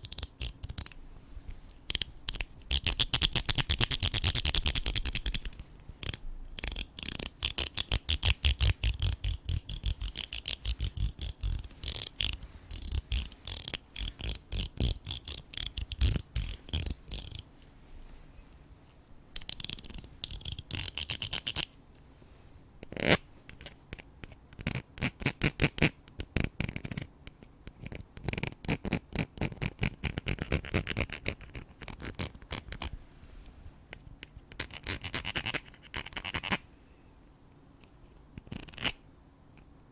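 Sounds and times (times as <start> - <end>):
rapid scratching and brushing clicks: 0.0 - 18.2, 19.3 - 21.7
crickets trilling: 0.0 - 39.9.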